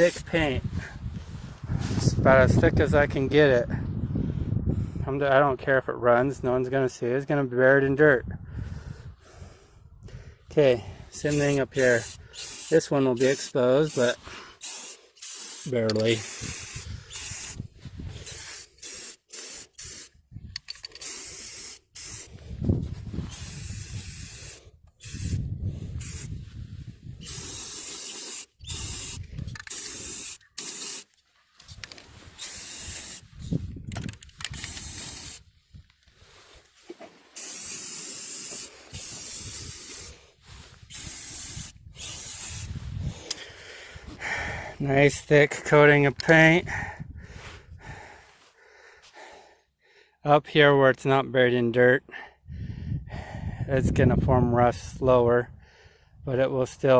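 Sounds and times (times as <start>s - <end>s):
aerosol spray can hissing: 11.3s - 17.6s, 18.2s - 20.2s, 20.9s - 22.3s, 23.3s - 25.4s, 26.0s - 26.3s, 27.2s - 31.1s, 32.4s - 33.3s, 34.5s - 35.4s, 37.3s - 40.2s, 40.8s - 43.3s.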